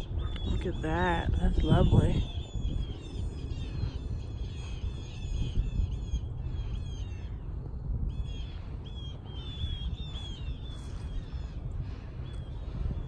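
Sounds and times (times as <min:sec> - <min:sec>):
birds calling high notes: 0:00.0 - 0:07.5
low rumble: 0:00.0 - 0:13.0.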